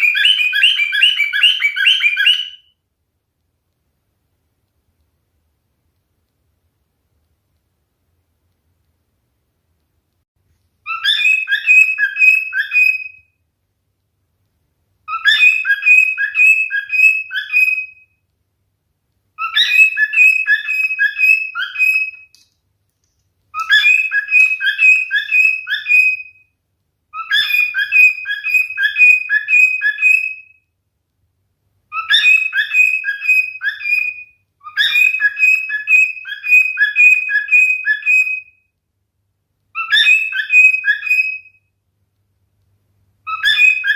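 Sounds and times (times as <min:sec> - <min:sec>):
cockatiel whistling: 0:00.0 - 0:02.7, 0:10.9 - 0:13.3, 0:15.1 - 0:18.1, 0:19.4 - 0:22.3, 0:23.5 - 0:26.5, 0:27.1 - 0:30.6, 0:31.9 - 0:38.6, 0:39.7 - 0:41.6, 0:43.2 - 0:43.9.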